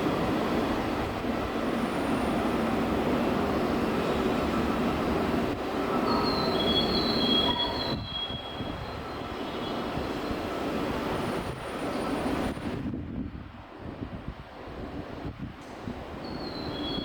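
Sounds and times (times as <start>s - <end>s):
train rumble: 0.0s - 17.0s
high-pitched wheel squeal: 6.1s - 9.0s, 16.3s - 17.0s.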